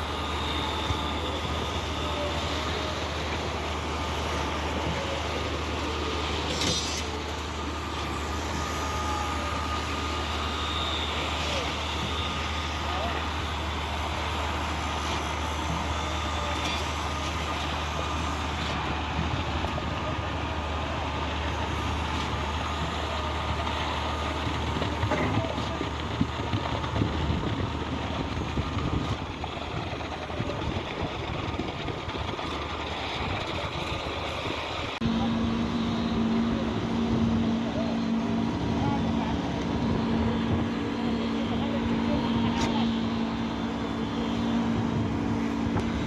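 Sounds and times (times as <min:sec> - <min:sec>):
diesel engine humming: 0:00.0 - 0:46.0.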